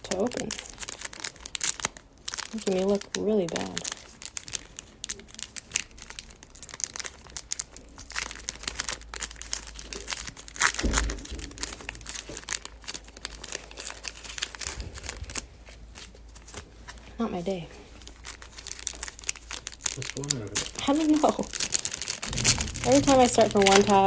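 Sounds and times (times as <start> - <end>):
card pack wrapper crinkling: 0.0 - 17.2, 17.8 - 24.0
bump: 10.8 - 12.4, 21.2 - 24.0.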